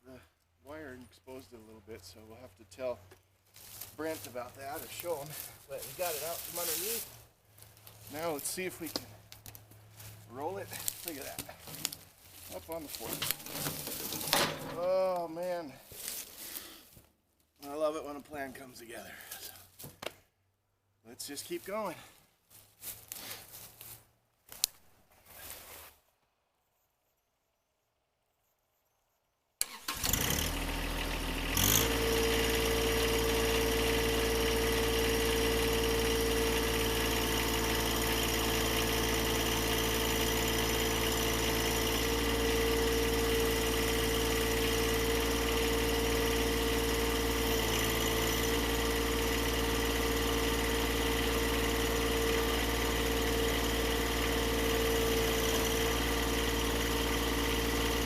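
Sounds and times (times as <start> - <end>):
engine starting: 29.6 - 32.3
engine running steadily: 29.7 - 58.0.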